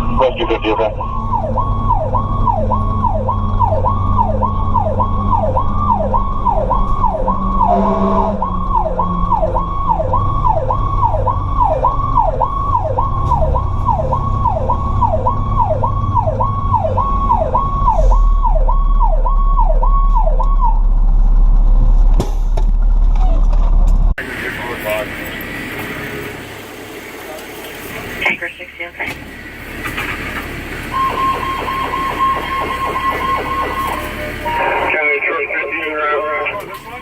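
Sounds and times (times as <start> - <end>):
fire truck siren yelping: 0.0 - 21.3, 24.2 - 37.0
siren blast: 0.0 - 21.5, 30.8 - 36.7
truck engine drone: 0.0 - 37.0.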